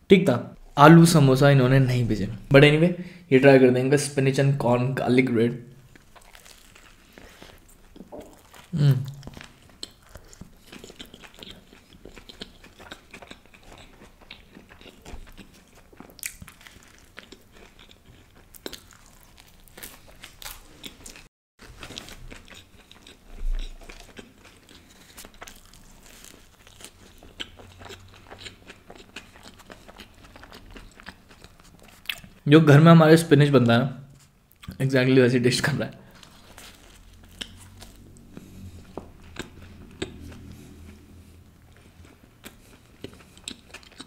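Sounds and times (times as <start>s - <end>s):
bread crunching while chewing: 5.9s - 32.4s, 36.1s - 41.0s, 41.6s - 44.0s.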